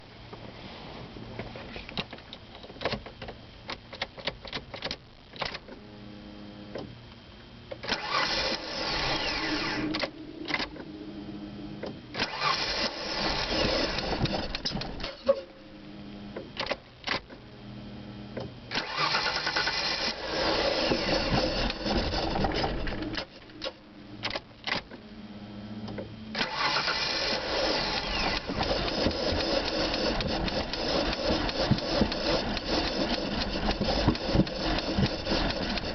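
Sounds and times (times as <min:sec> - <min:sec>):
engine cranking: 0:07.8 - 0:10.8, 0:12.1 - 0:15.4, 0:18.7 - 0:24.9, 0:26.3 - 0:35.9.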